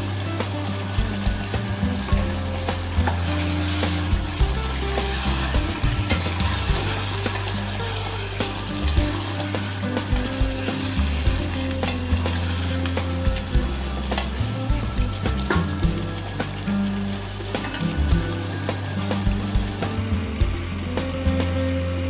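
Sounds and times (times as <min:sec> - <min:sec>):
meat sizzling in a pot: 0:00.0 - 0:22.0
steady low hum: 0:00.0 - 0:22.0.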